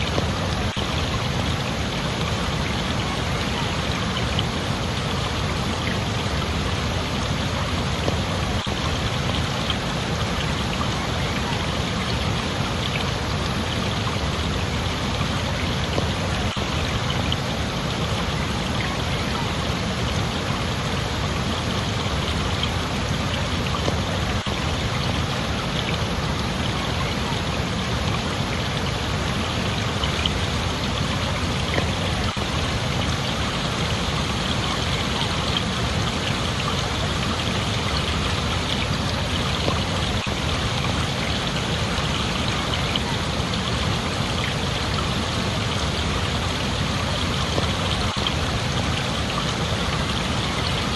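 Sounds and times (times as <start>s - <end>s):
running water rushing: 0.0s - 50.9s.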